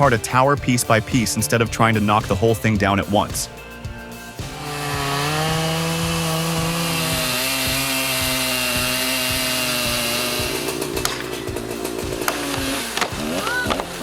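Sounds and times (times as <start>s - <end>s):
chainsaw cutting: 4.4s - 14.0s
sharp clicks: 10.6s - 14.0s.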